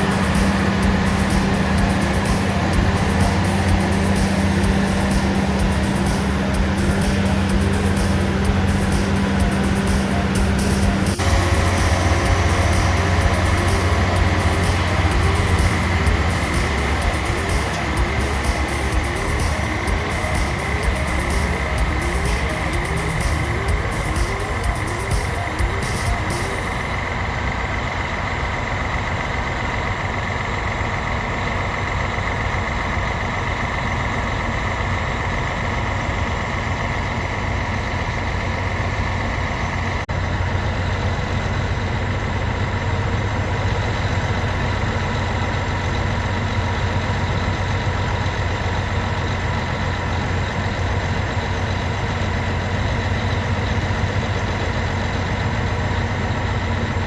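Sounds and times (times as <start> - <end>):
steady high whine: 0.0 - 32.6
locomotive low engine hum: 0.0 - 57.0.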